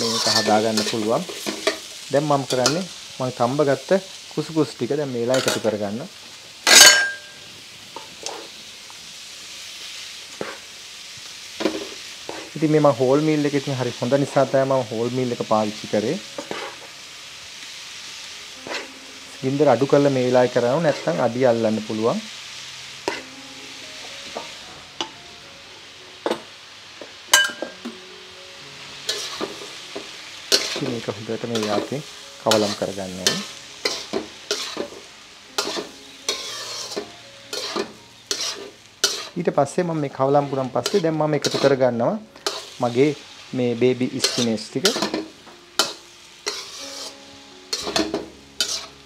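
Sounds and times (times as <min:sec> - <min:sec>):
food sizzling in a wok: 0:00.0 - 0:49.0
soft background music: 0:00.0 - 0:49.0
metal clinks against wok: 0:06.7 - 0:07.4, 0:27.3 - 0:27.8.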